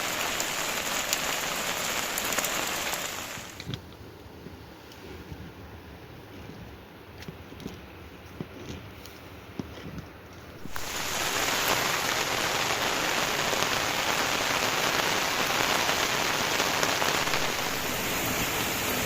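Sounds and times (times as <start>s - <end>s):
heavy rain falling: 0.0s - 3.6s, 10.6s - 19.0s.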